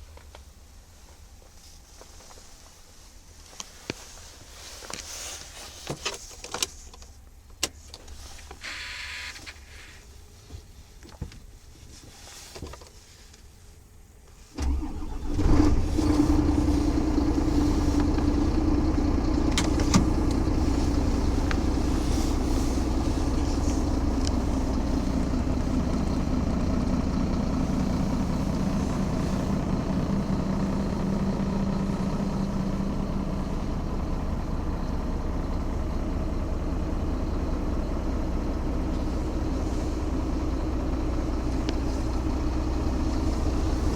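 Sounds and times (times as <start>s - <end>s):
diesel engine starting and idling: 14.4s - 43.9s.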